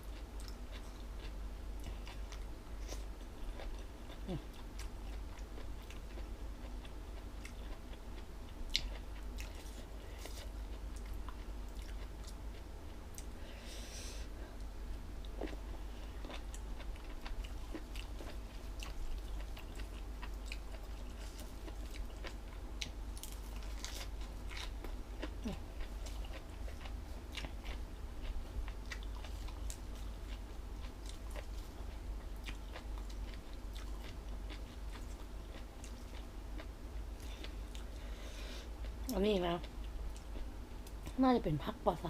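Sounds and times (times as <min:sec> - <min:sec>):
person chewing crunchy food: 0:00.0 - 0:41.1.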